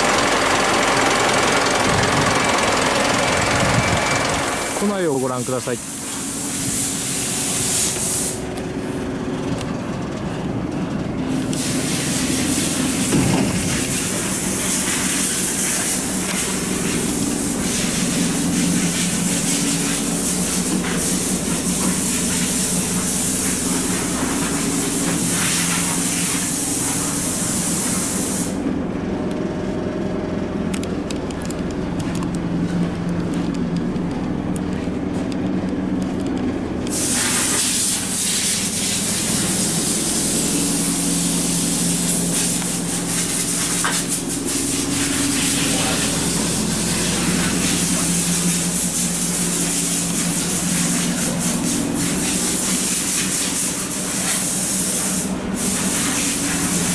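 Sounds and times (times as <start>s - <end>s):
loud hissing noise: 1.7s - 9.1s, 11.3s - 28.7s, 36.8s - 56.9s
low droning hum: 28.6s - 37.3s.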